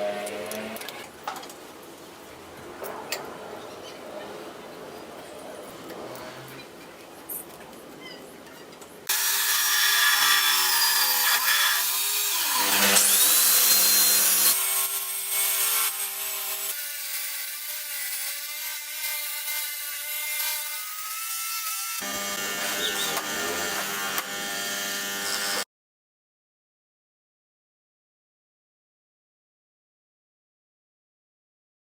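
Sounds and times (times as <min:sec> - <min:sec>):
belt sander motor hum: 0:22.0 - 0:25.6.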